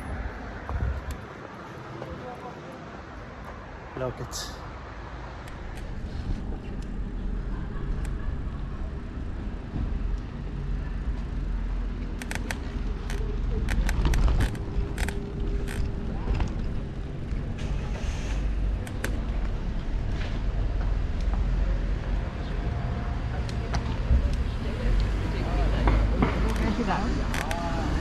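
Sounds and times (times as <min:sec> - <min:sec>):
wind and road rumble: 0:00.0 - 0:28.0
bicycle clicks and rattles: 0:12.2 - 0:17.5.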